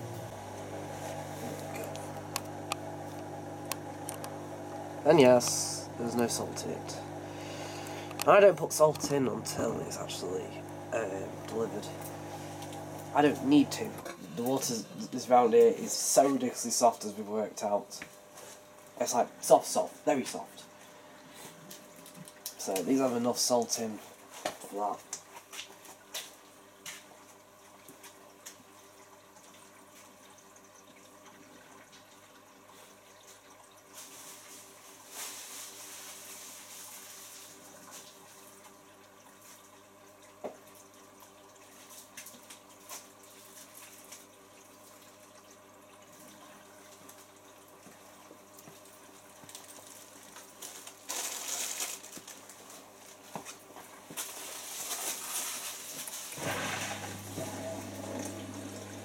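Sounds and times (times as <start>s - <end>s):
steady low hum: 0.0s - 16.2s
dishwasher water running: 0.0s - 17.8s, 55.8s - 59.0s.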